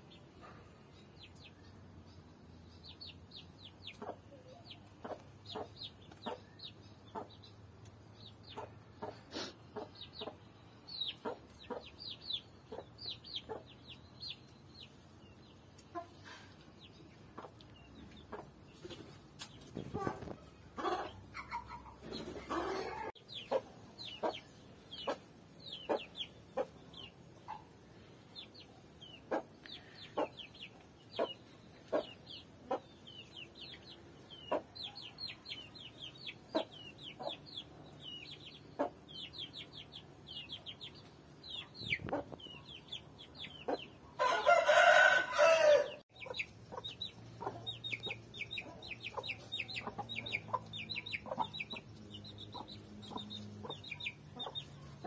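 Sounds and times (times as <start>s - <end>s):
chicks peeping: 1.1s - 55.0s
loud chicken call: 44.2s - 46.0s.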